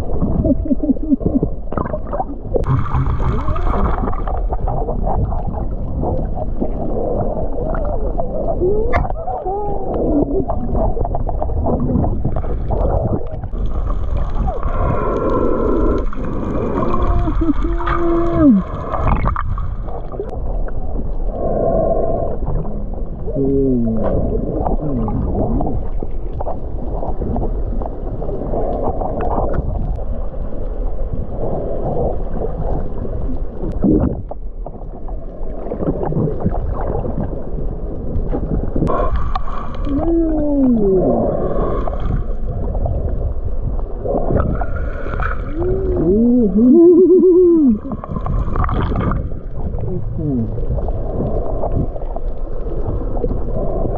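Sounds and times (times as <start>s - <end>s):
muffled underwater water noise: 0.0s - 53.9s
moaning tones bending in pitch: 45.5s - 48.0s.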